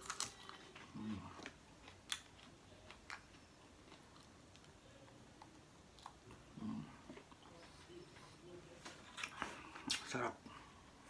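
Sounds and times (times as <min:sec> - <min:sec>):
spring onion crunching: 0:00.0 - 0:03.3.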